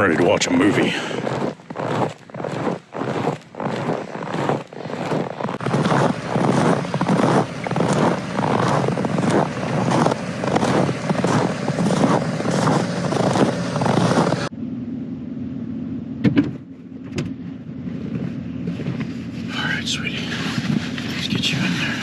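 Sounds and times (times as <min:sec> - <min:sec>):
footsteps crunching through snow: 0:00.0 - 0:14.5
pickup truck engine idling: 0:06.1 - 0:14.5.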